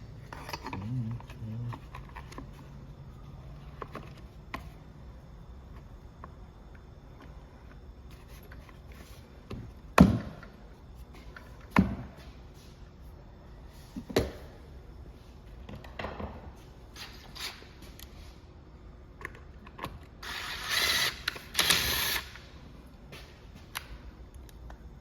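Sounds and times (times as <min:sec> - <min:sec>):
tools and parts clicking: 0:00.3 - 0:02.5.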